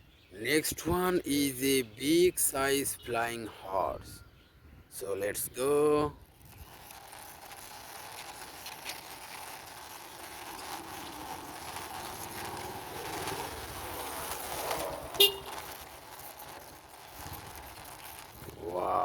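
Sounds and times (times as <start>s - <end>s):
toy wheels rolling: 5.0s - 19.0s.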